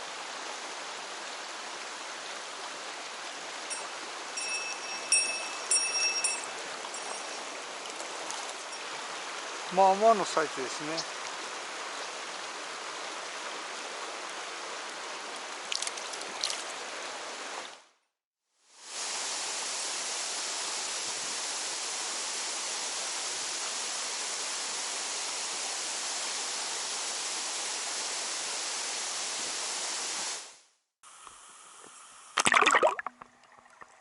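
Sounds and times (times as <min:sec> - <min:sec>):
stream water rushing: 0:00.0 - 0:17.9.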